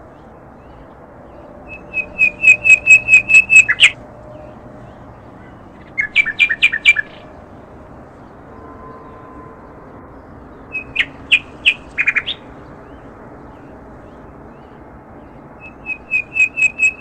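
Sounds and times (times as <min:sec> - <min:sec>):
small birds chirping: 0:00.0 - 0:07.3, 0:10.5 - 0:17.0.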